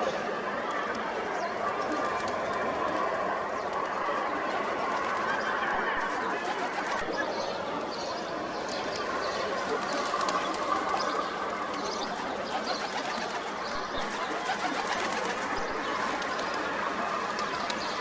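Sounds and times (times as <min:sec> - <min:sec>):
pigeons calling: 0:08.2 - 0:16.6.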